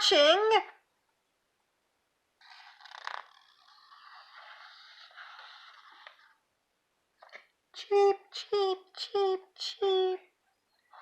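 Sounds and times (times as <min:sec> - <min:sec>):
paper page rustling: 0:02.4 - 0:06.4.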